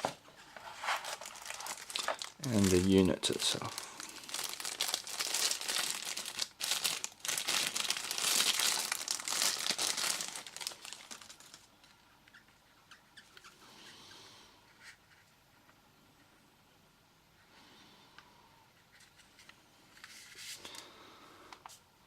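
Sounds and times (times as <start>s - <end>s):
packaging crinkling: 0.6s - 11.7s.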